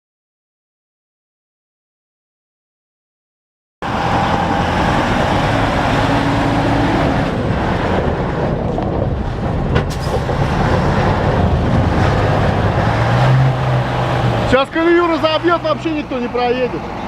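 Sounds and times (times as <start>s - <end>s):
car engine and road noise: 3.8s - 17.0s.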